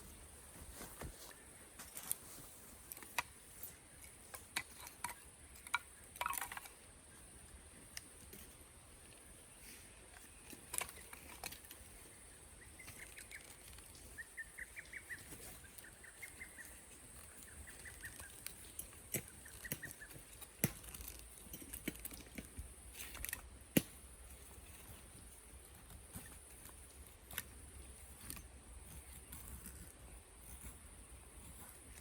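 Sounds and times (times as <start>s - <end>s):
small bird singing: 9.4s - 22.1s
sharp clicks and knocks: 17.3s - 24.0s.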